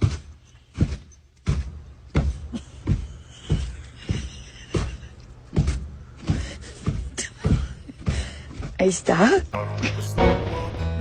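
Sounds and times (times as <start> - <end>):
hip-hop music with heavy kick drum: 9.6 - 11.0.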